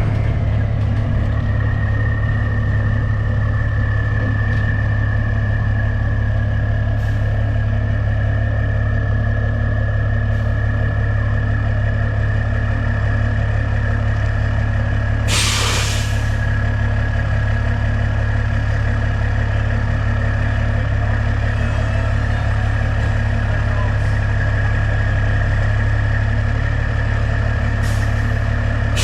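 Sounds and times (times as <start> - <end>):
truck engine running: 0.0 - 29.0
air brake hiss: 15.3 - 16.4.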